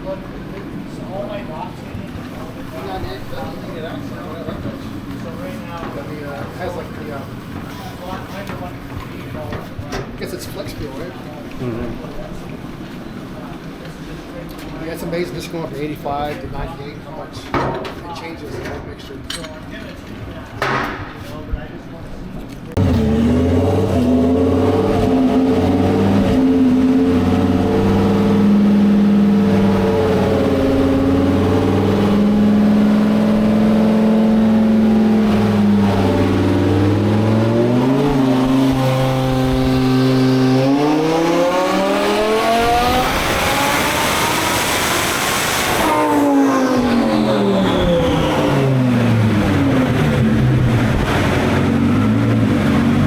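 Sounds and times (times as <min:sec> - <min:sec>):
sports car engine revving: 0:22.8 - 0:53.0.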